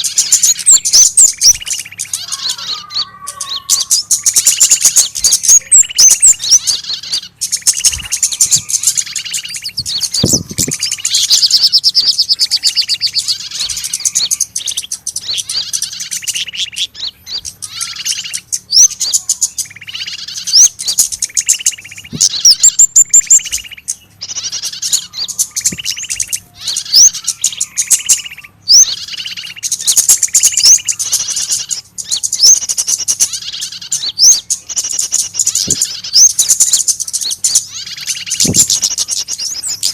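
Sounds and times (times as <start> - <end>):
bird distress calls: 0.0 - 39.9.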